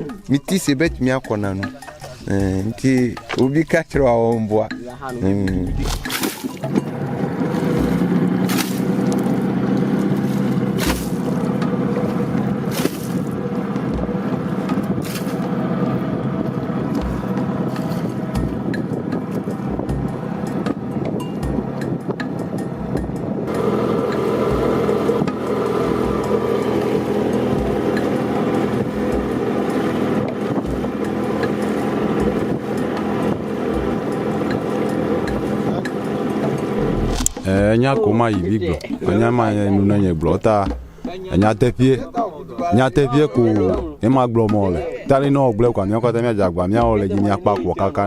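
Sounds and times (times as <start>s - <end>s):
engine running steadily: 4.7s - 37.8s
steady motor drone: 5.2s - 37.8s
low thump: 36.8s - 37.6s.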